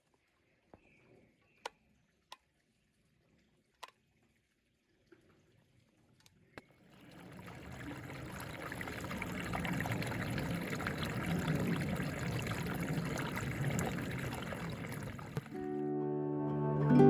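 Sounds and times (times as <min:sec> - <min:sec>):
water pouring: 0:04.2 - 0:15.7.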